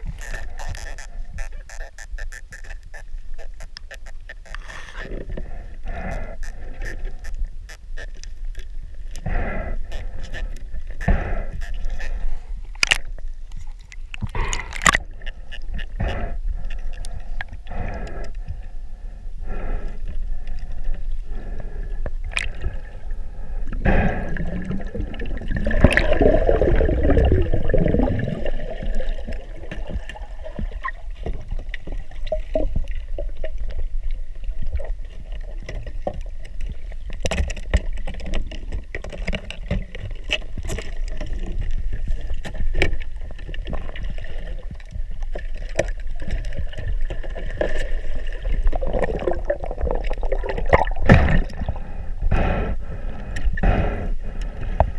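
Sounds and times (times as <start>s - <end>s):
muffled underwater rumble: 0.0s - 54.9s
burst of bubbles: 24.3s - 29.5s, 48.7s - 51.6s.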